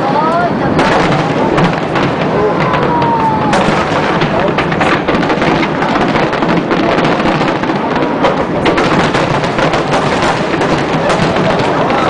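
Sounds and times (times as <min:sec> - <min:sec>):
fireworks booming and crackling: 0:00.0 - 0:12.0.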